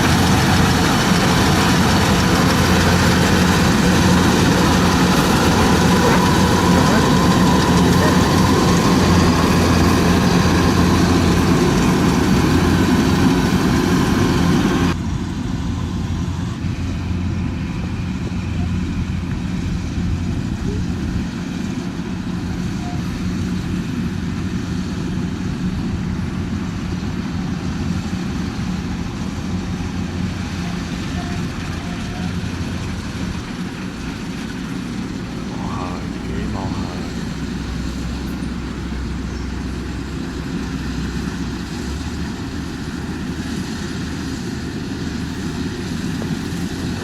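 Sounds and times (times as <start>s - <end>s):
harvesting machine engine running: 0.0s - 24.9s, 32.3s - 47.0s.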